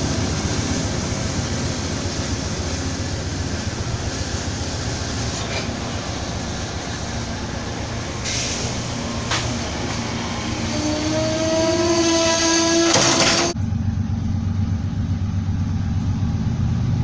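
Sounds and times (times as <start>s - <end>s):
train rumbling past: 0.0s - 17.0s
whine rising in pitch: 10.4s - 15.0s.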